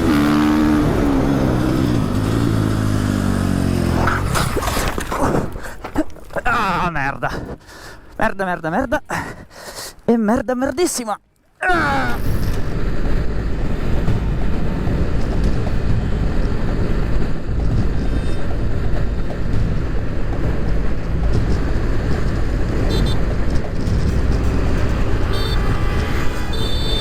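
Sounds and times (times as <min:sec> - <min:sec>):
motorcycle engine: 0:00.0 - 0:05.7, 0:12.5 - 0:27.0
wind noise: 0:00.0 - 0:09.5, 0:11.7 - 0:27.0.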